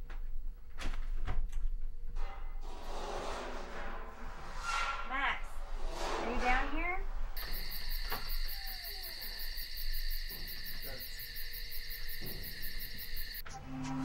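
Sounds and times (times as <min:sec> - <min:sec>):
crickets trilling: 0:07.4 - 0:13.4.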